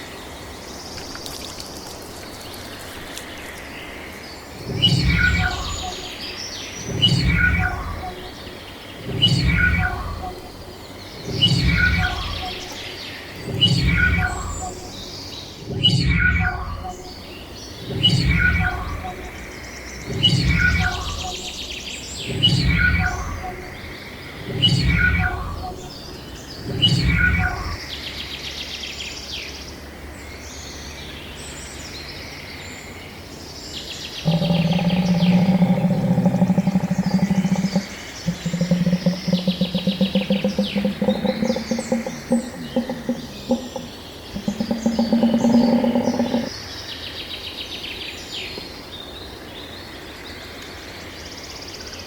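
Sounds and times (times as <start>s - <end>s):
small birds chirping: 0.0s - 28.5s, 33.8s - 46.6s
low bird call: 4.6s - 6.2s, 6.8s - 10.6s, 11.2s - 27.8s, 34.2s - 46.5s
buzzy pulsed bird call: 4.7s - 6.2s, 6.9s - 8.4s, 9.0s - 10.5s, 11.2s - 12.8s, 13.4s - 17.2s, 20.1s - 26.0s, 34.2s - 46.5s.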